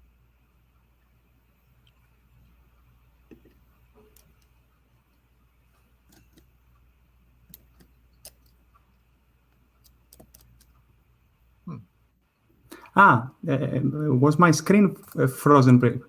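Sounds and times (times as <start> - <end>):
low electrical hum: 0.0 - 16.0
faint computer mouse clicks: 7.5 - 8.9, 9.5 - 10.8.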